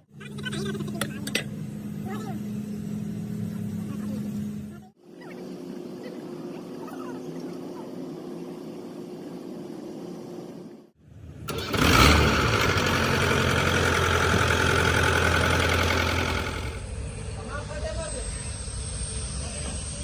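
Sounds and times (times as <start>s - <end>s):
quiet machine hum: 0.0s - 11.5s
engine starting and running: 9.0s - 17.2s.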